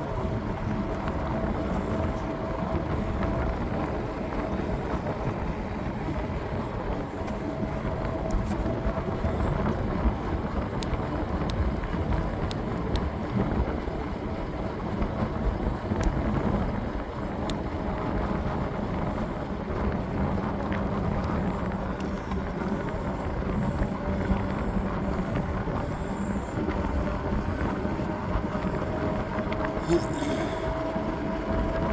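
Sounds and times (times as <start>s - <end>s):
low road rumble: 0.0s - 31.9s
wind on microphone: 0.0s - 31.9s.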